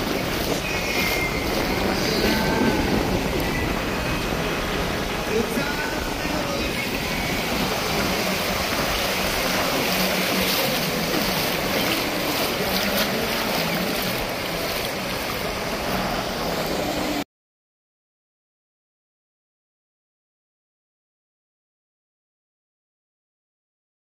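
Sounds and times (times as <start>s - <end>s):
beach surf: 0.0s - 17.2s
wind: 0.0s - 17.2s.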